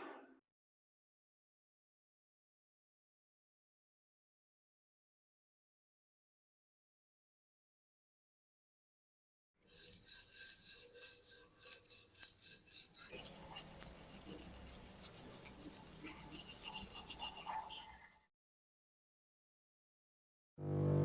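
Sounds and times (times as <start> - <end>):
abrasive rasping on rusty metal: 9.6 - 18.2.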